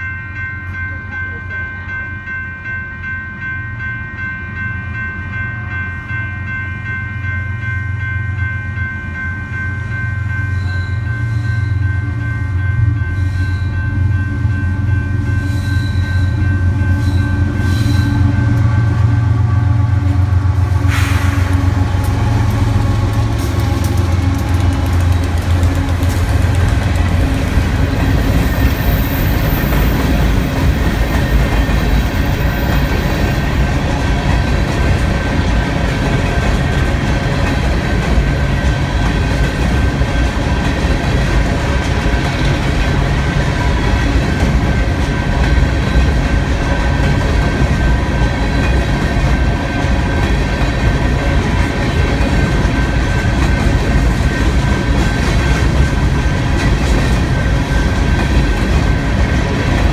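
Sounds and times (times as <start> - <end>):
faint high ringing tones: 0.0 - 20.2
train wheels rumbling on rails: 0.0 - 59.9
clickety-clack over rail joints: 21.0 - 59.9.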